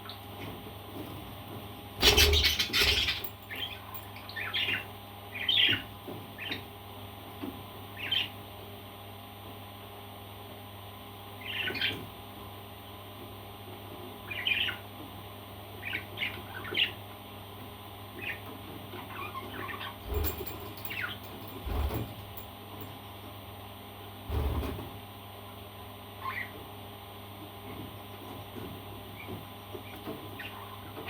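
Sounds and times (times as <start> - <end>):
parrot chirping and squawking: 2.0 - 5.8, 19.0 - 21.3, 26.2 - 26.5, 30.4 - 30.9.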